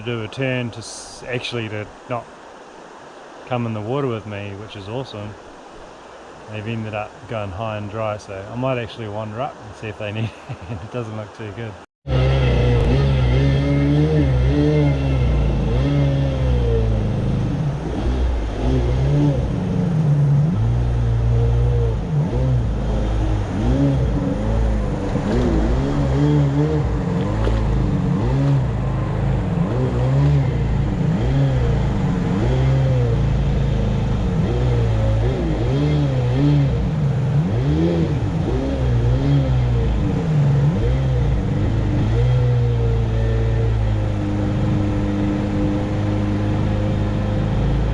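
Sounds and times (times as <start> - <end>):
boat engine revving: 12.0 - 47.9.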